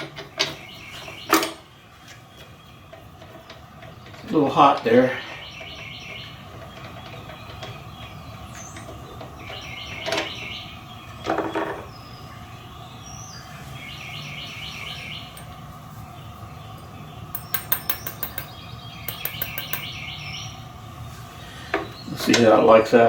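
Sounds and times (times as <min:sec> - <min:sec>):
songbird singing: 0:00.0 - 0:23.0
small metal taps and clinks: 0:15.3 - 0:15.6, 0:17.3 - 0:19.9.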